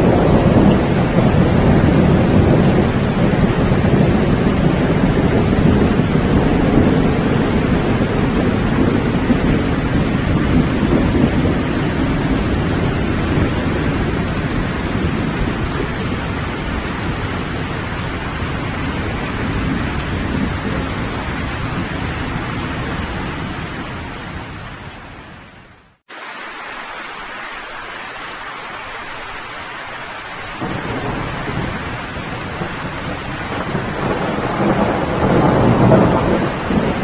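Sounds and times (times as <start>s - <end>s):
low rumble of thunder: 0.0s - 24.5s, 30.6s - 37.0s
steady rain falling: 0.0s - 37.0s.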